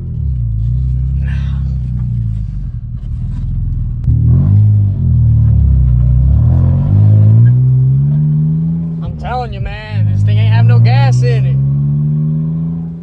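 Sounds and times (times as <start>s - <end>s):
car engine accelerating: 0.0s - 13.0s
man talking: 9.0s - 11.6s.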